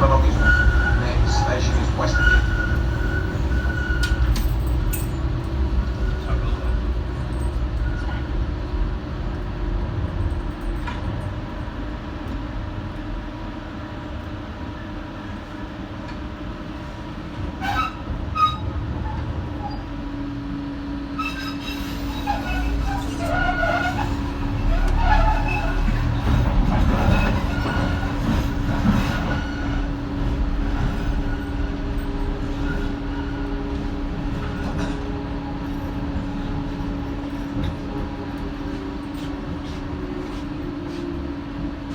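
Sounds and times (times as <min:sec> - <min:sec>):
train motor hum: 0:00.0 - 0:09.6
train wheels rumbling on track: 0:00.0 - 0:41.9
wheel squeals: 0:00.1 - 0:04.7, 0:21.2 - 0:30.0.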